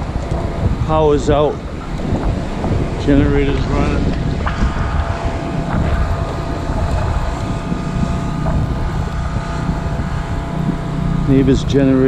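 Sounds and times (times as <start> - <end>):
generator engine running: 0.0 - 12.0
wind noise on microphone: 0.0 - 12.0.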